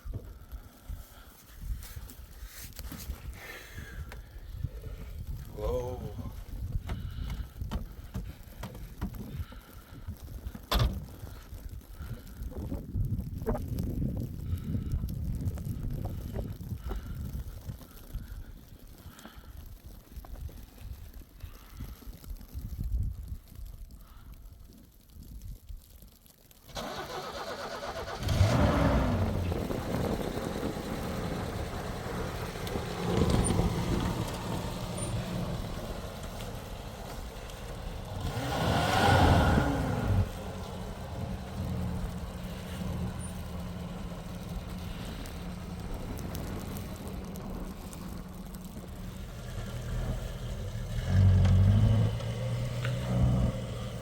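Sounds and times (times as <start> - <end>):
vehicle engine starting and revving: 26.7 - 54.0.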